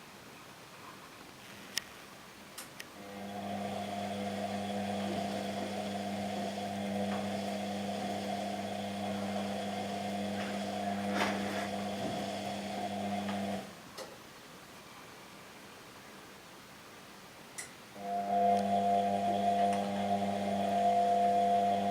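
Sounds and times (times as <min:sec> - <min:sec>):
washing machine motor humming: 0:03.0 - 0:13.8, 0:18.0 - 0:21.9.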